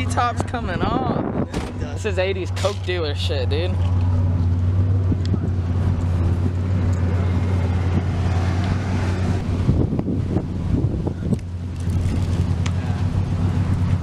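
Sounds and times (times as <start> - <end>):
car engine idling: 0.0 - 14.0
wind noise on microphone: 0.1 - 2.0, 4.9 - 13.0.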